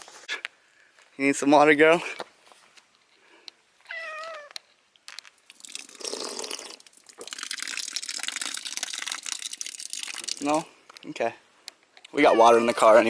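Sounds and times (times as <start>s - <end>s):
crackling rustling noise: 2.0s - 5.6s
cat meowing: 3.8s - 4.6s, 12.2s - 13.0s.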